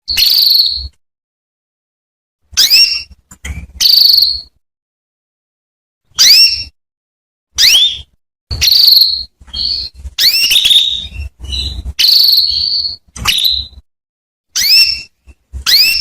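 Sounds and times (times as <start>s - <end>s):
canary chirping: 0.1s - 1.0s, 2.5s - 4.6s, 6.1s - 6.8s, 7.6s - 13.8s, 14.6s - 16.0s.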